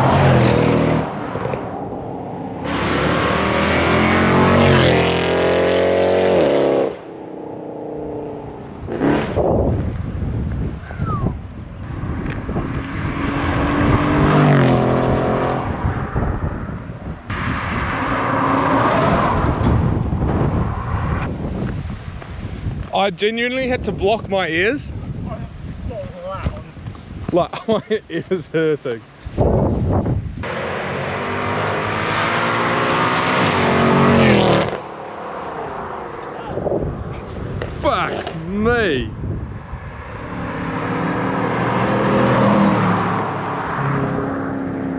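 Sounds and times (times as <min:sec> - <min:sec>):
car exhaust under hard acceleration: 0:00.0 - 0:22.7.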